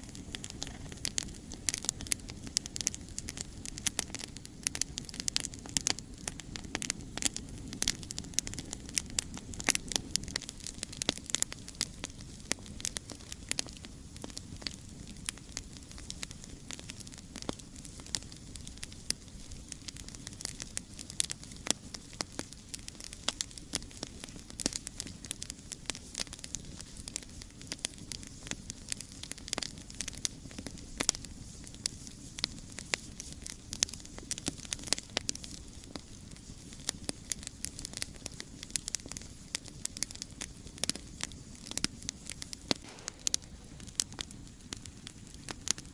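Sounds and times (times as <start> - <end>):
campfire crackling and popping: 0.0 - 45.9
low rumble of flames: 0.0 - 45.9.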